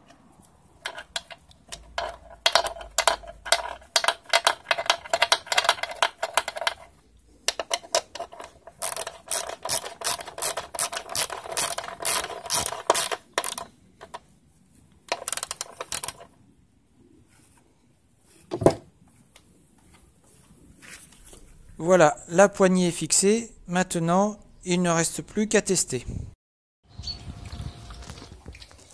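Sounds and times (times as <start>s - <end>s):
hand ratchet clicking: 7.5s - 13.7s, 15.1s - 16.3s.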